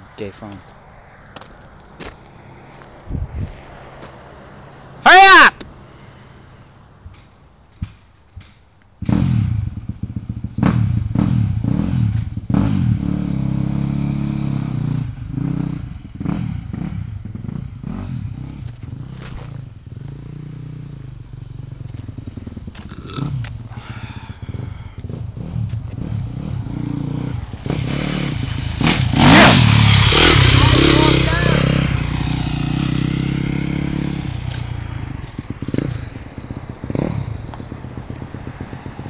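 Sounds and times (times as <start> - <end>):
motorcycle engine revving: 9.0 - 39.0.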